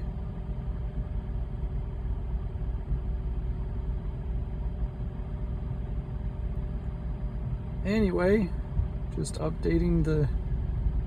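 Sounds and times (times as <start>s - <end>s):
faint constant hum: 0.0s - 11.0s
steady low rumble: 0.0s - 11.0s.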